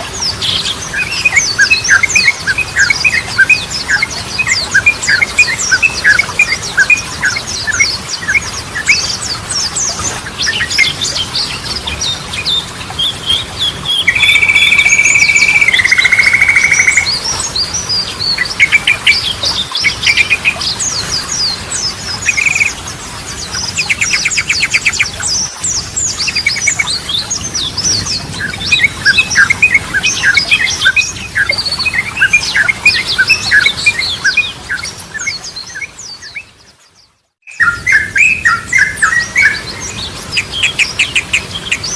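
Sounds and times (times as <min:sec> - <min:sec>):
bulbul singing: 0:12.5 - 0:22.9.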